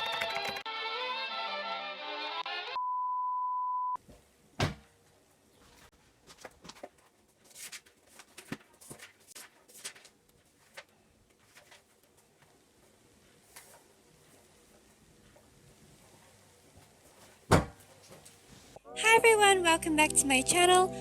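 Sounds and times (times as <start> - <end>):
music: 0.0 - 2.8, 18.8 - 21.0
loud thunk: 4.6 - 4.9, 17.5 - 17.8.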